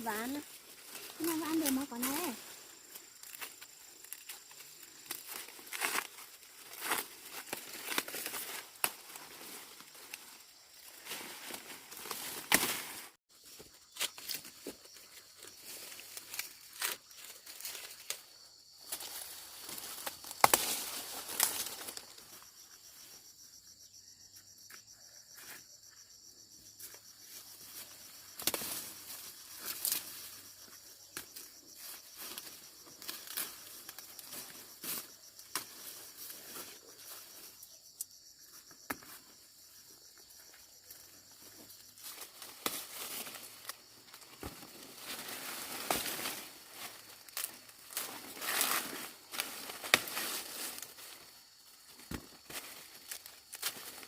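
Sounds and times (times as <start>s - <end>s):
dry corn leaves rustling: 0.0s - 22.8s, 26.8s - 37.7s, 40.9s - 54.0s
corn ears snapping off stalks: 11.5s - 13.0s, 19.8s - 22.0s, 28.4s - 30.2s, 42.1s - 46.4s, 47.2s - 50.8s
high insect drone: 13.3s - 54.0s.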